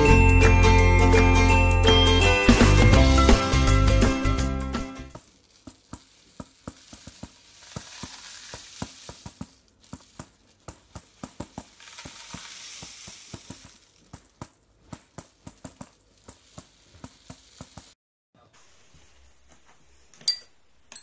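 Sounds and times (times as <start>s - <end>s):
tambourine with jingle bells: 0.0s - 18.0s
soft rattling hiss: 5.2s - 18.0s.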